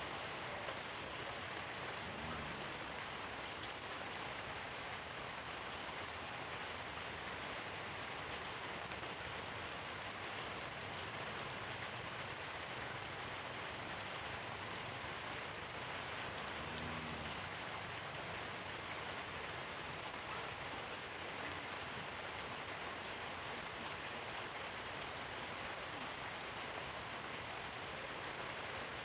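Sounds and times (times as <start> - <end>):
rain falling: 0.0 - 29.0
low croak: 1.4 - 3.1, 16.2 - 19.2.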